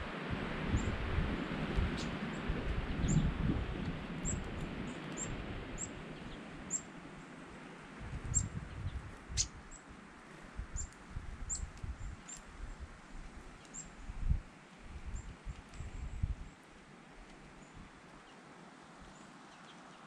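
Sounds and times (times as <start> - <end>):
wind buffeting microphone: 0.0 - 6.8, 7.8 - 9.8, 10.5 - 16.5.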